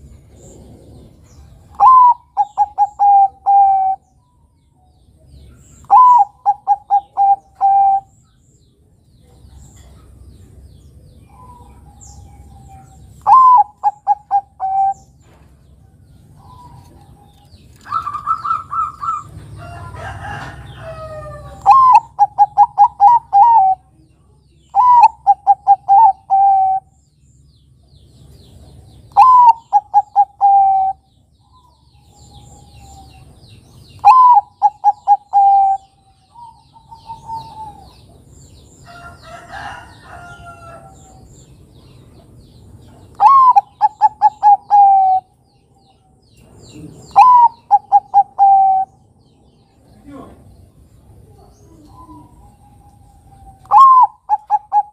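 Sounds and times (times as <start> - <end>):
dove cooing: 0.3 - 4.0, 5.8 - 8.1, 12.6 - 15.1, 17.8 - 23.9, 24.7 - 26.9, 29.1 - 31.0, 34.0 - 38.2, 43.2 - 45.3, 46.8 - 49.0, 51.2 - 54.9.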